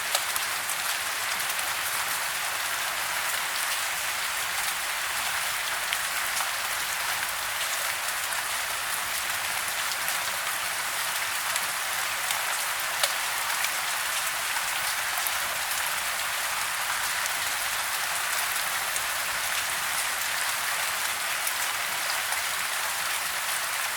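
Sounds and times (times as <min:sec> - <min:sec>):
raindrops ticking: 0:00.0 - 0:00.6
soft rain hiss: 0:00.0 - 0:23.9.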